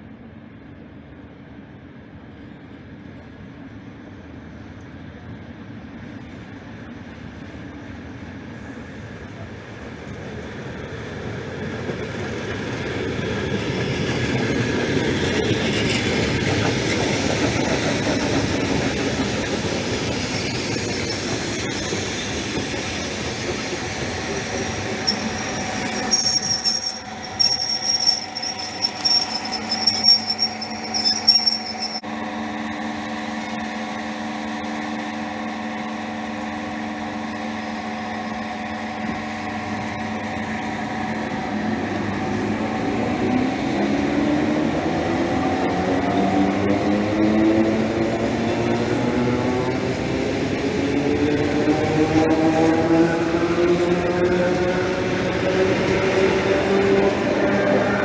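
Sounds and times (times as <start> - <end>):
electric train running on rails: 9.6 - 32.0, 41.3 - 58.0
wheels squealing: 15.0 - 32.0.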